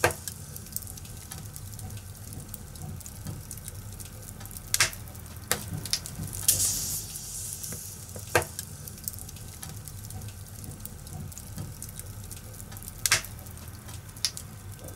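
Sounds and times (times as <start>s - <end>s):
fire crackling: 0.0s - 14.9s
sharp fire pops: 4.7s - 9.9s, 13.0s - 13.4s.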